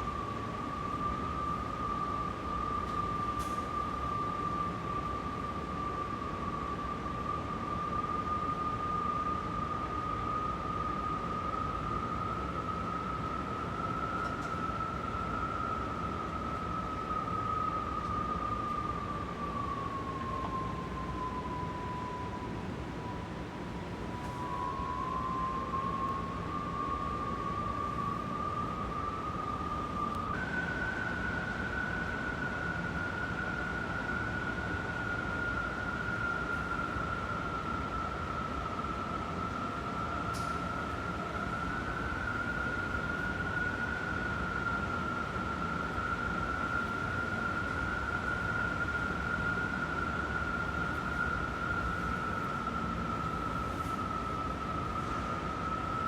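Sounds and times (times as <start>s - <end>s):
strong wind howling: 0.0s - 56.0s.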